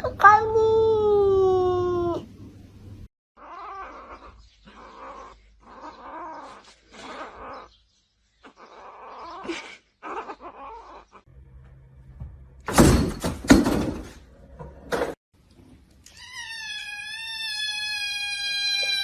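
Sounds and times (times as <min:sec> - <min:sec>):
cat meowing: 0:03.4 - 0:07.7, 0:16.1 - 0:19.0.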